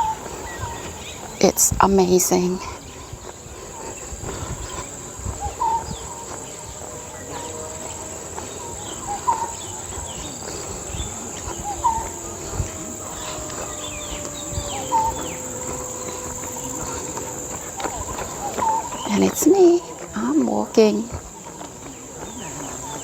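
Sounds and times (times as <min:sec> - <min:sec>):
high-pitched insect drone: 0:03.6 - 0:20.3.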